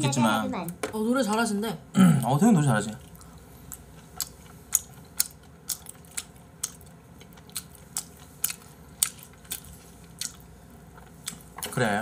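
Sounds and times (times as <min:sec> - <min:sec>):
low room hum: 0:00.0 - 0:12.0
person chewing food: 0:03.0 - 0:11.7.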